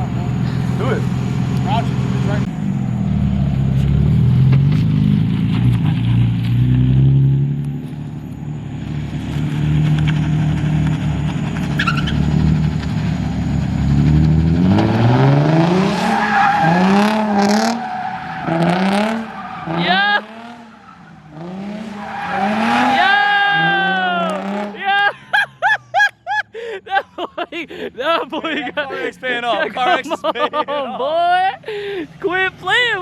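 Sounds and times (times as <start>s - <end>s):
car engine revving: 0.0s - 24.9s
tyres squealing: 11.6s - 12.3s, 15.9s - 25.2s.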